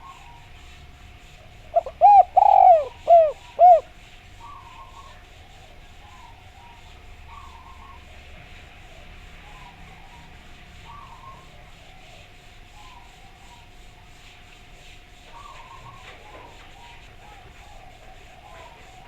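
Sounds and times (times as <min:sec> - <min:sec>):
soft bird chirping: 0:00.0 - 0:08.3
dove cooing: 0:00.0 - 0:13.8, 0:15.2 - 0:19.0.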